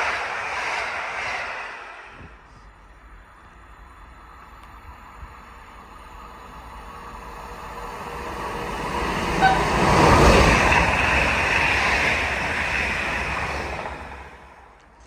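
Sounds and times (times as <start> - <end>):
brief high squeak: 9.4 - 9.9.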